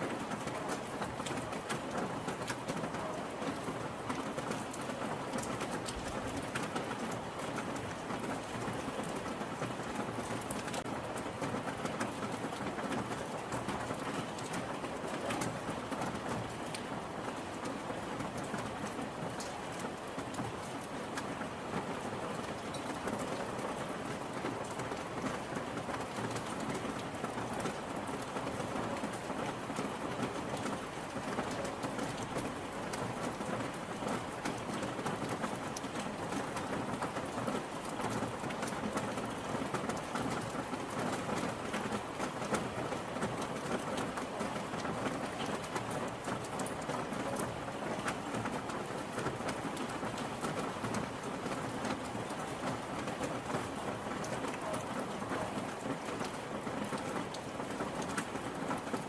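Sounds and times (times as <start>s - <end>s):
rain pattering: 0.0s - 59.0s.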